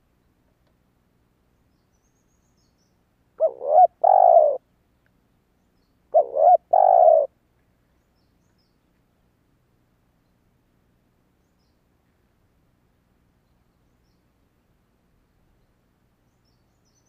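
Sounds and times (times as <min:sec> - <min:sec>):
dove cooing: 0:03.4 - 0:04.6, 0:06.1 - 0:07.3.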